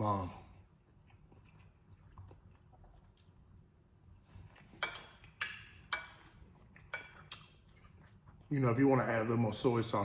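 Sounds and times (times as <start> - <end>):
cutlery clinking against dish: 4.7 - 7.5.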